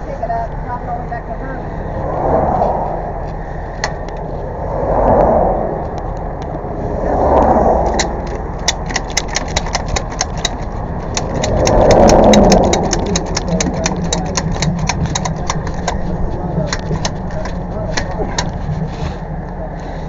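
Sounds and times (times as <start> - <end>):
engine running: 0.0 - 20.0
rapid ticking: 7.9 - 18.6.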